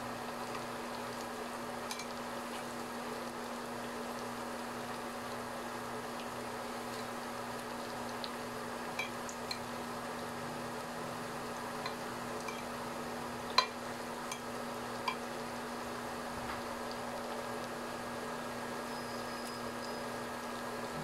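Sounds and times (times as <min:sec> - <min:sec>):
food sizzling in hot oil: 0:00.0 - 0:21.0
metal tongs clicking against pan: 0:01.9 - 0:02.1, 0:11.8 - 0:12.7.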